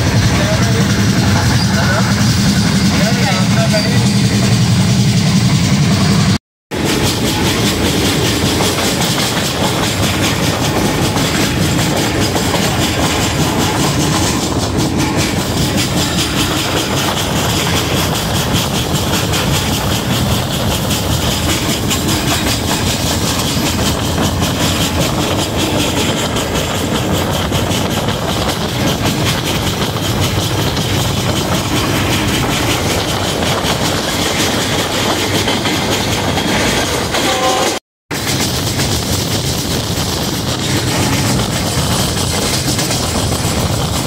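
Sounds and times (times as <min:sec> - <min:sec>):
train wheels rumbling on rails: 0:00.0 - 0:44.0
wind: 0:00.0 - 0:44.0.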